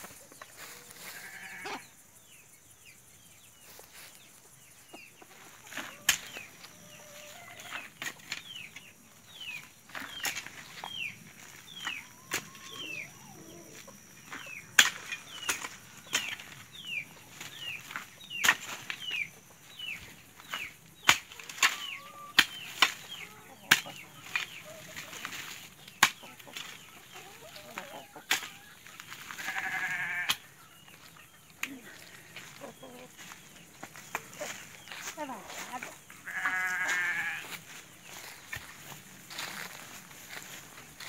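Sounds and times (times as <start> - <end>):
hoe chopping into soil: 14.8 - 16.5.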